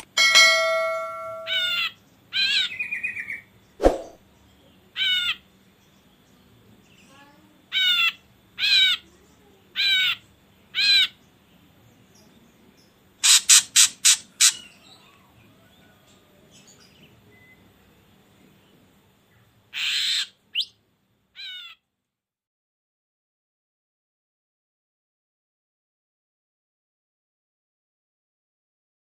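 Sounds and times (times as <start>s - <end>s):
bird calls: 13.2s - 17.6s, 19.4s - 20.8s
bird rasping call: 21.4s - 21.8s.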